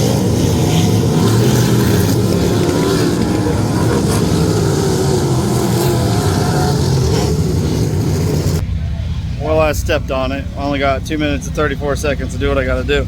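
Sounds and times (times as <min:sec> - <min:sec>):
race car engines running hard: 0:00.0 - 0:13.0.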